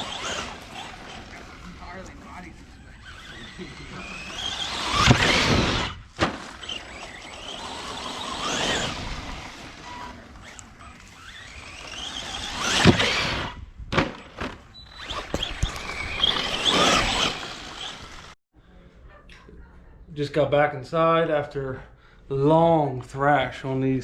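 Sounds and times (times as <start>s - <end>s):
electric toy truck motor whining: 0.0s - 13.6s, 14.8s - 18.4s
toy truck hitting something: 5.0s - 6.6s, 12.6s - 17.4s.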